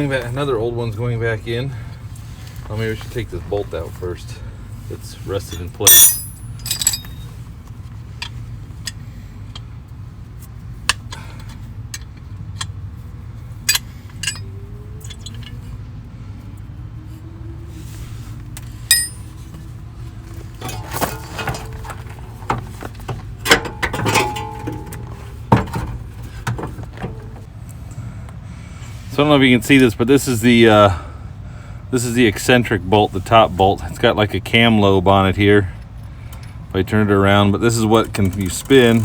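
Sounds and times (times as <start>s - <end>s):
hand tools clinking on metal: 5.5s - 7.4s, 13.7s - 15.6s, 18.9s - 19.4s, 23.5s - 25.0s.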